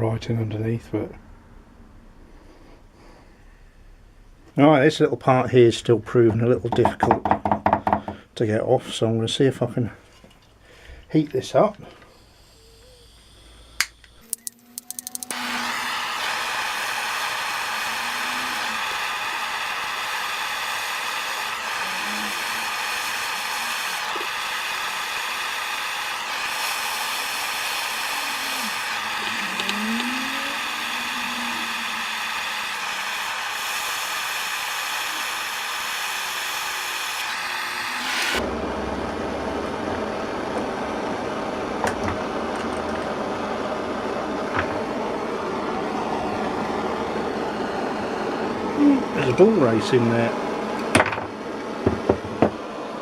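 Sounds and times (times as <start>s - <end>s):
heat gun fan whir: 6.2s - 8.2s, 11.1s - 53.0s
heat gun clicks: 13.8s - 15.4s, 28.8s - 30.7s.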